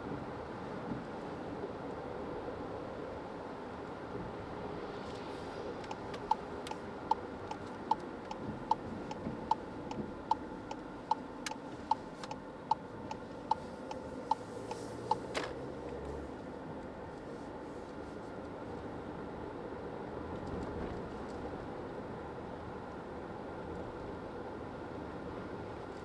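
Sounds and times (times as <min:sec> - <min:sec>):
road noise: 0:02.4 - 0:26.0
turn signal ticking: 0:05.8 - 0:16.0.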